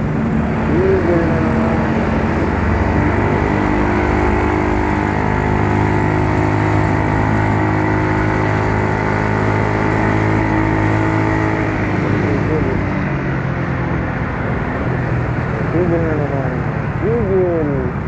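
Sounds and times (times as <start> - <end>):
scooter engine running: 0.0 - 14.2.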